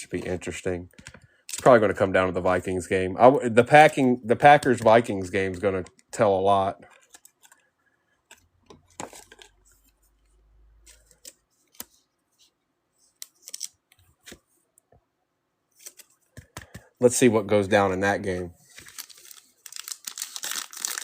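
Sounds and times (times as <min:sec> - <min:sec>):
trading cards and wrappers rustling: 0:03.6 - 0:14.6, 0:15.7 - 0:21.0.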